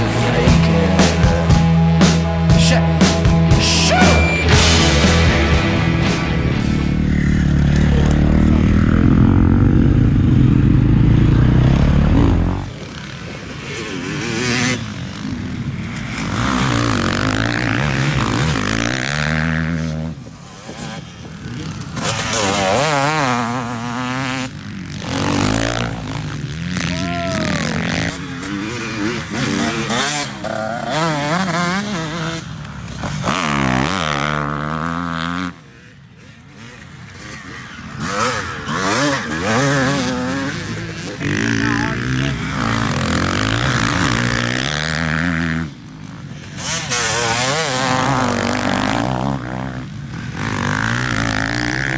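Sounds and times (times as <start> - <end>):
background music: 0.0 - 7.4
dirt bike engine revving: 0.0 - 51.9.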